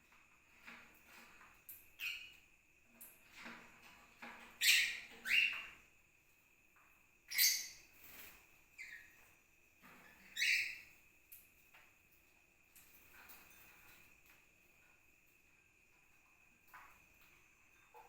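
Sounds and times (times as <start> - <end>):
parrots calling: 7.3 - 7.8, 10.3 - 10.8.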